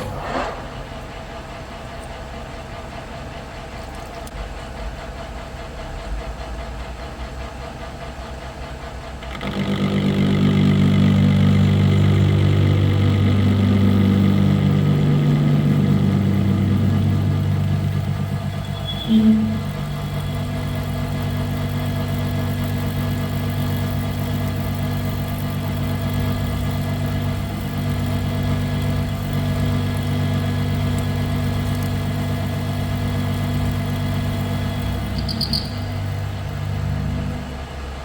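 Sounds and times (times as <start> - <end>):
metal lathe running: 8.4 - 38.0
loud low drone with pitched tones: 9.2 - 38.0.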